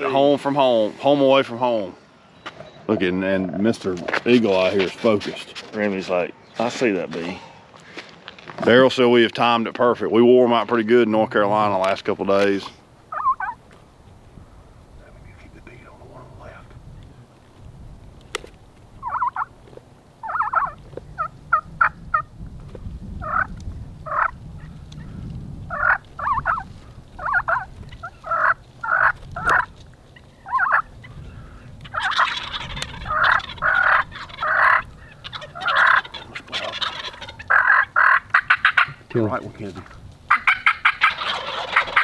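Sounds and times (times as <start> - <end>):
turkeys gobbling: 12.5 - 13.8, 19.0 - 22.3, 23.2 - 42.0.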